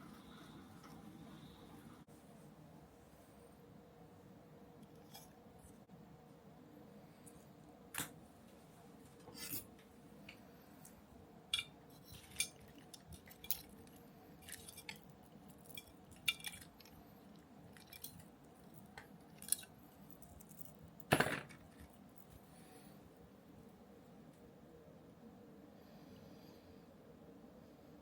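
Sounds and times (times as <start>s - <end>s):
small parts and tools clicking: 11.5s - 22.4s
parts rattling: 17.7s - 22.3s.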